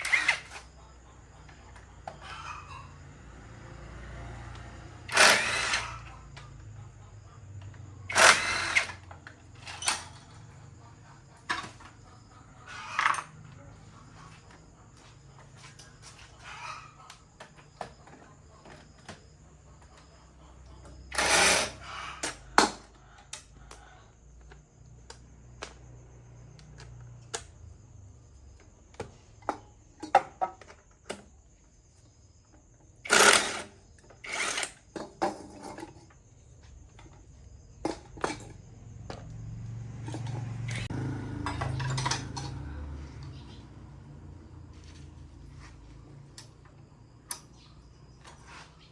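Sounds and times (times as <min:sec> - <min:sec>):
tools and metal parts clattering: 0:00.0 - 0:00.8, 0:05.0 - 0:06.6, 0:07.5 - 0:20.1, 0:20.8 - 0:23.6, 0:28.5 - 0:43.7, 0:44.7 - 0:48.9.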